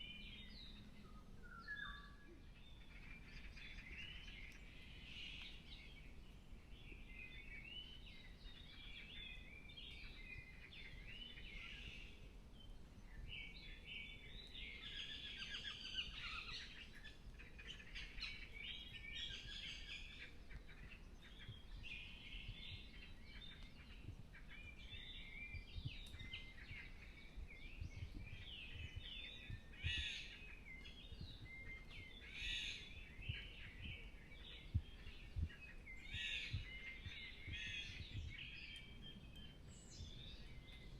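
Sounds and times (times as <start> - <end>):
songbirds singing: 0.0 - 40.9
sharp bird calls: 13.7 - 40.9.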